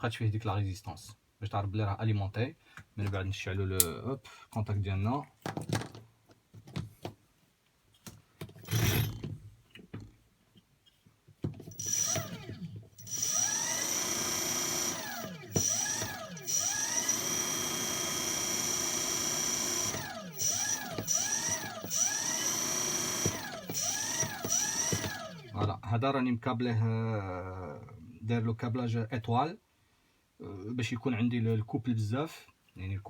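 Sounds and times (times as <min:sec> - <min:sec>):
electric motor whining: 0:08.6 - 0:09.2, 0:11.7 - 0:25.6.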